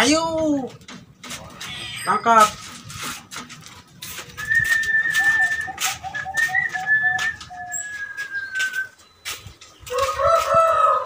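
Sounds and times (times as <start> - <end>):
birds whistling: 4.2 - 10.3.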